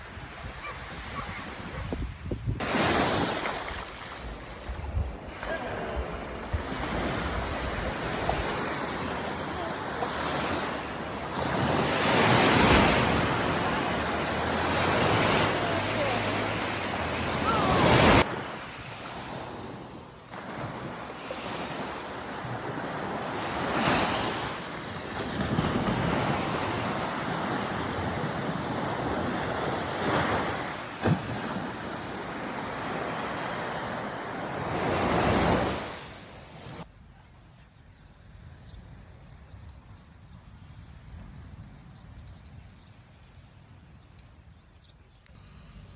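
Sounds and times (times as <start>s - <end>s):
wind buffeting microphone: 0.0s - 18.3s
sea surf washing on shore: 2.6s - 36.9s.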